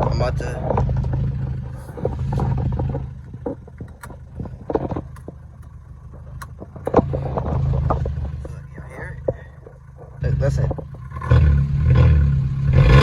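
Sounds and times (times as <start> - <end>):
car engine drone: 0.0 - 13.0
clicks and knocks: 0.6 - 8.6.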